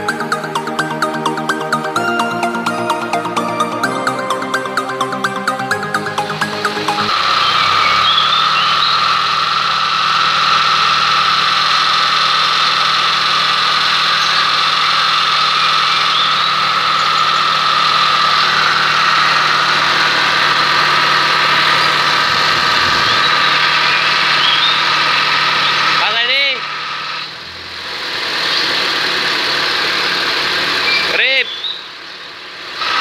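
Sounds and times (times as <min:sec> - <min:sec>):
high whine: 0:00.0 - 0:28.1
air-conditioning compressor drone: 0:00.0 - 0:33.0.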